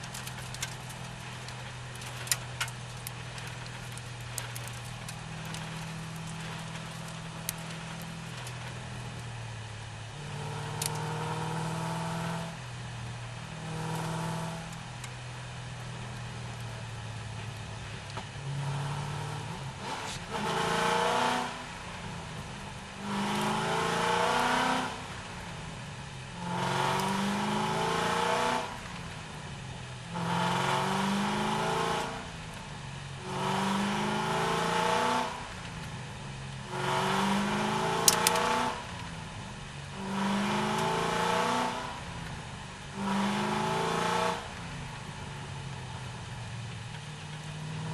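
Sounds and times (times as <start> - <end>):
car engine idling and revving: 0.0 - 47.9.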